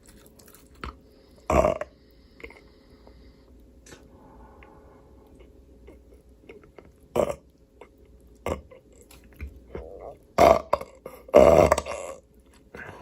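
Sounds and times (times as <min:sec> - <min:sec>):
quiet chewing: 0:00.0 - 0:13.0
loud burps: 0:01.5 - 0:01.9, 0:07.1 - 0:07.4, 0:10.4 - 0:12.2.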